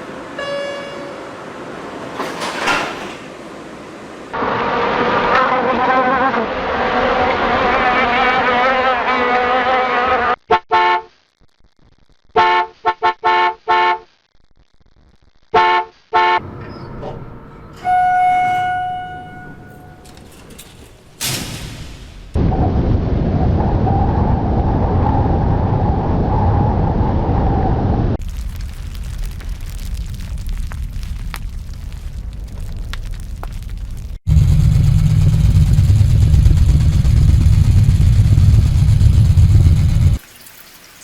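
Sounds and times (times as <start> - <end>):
car horn honks: 0.4 - 1.2, 15.6 - 16.5, 17.8 - 20.2
held tone: 17.6 - 20.2
loud steady noise: 19.8 - 23.2, 34.3 - 40.2
sharp crack: 20.3 - 22.5.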